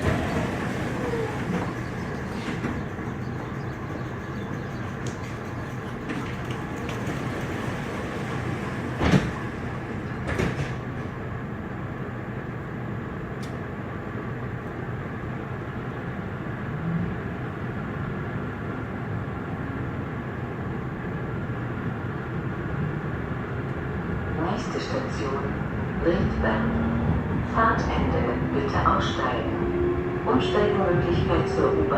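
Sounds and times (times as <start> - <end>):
train wheels and motors rumbling: 0.0 - 31.9.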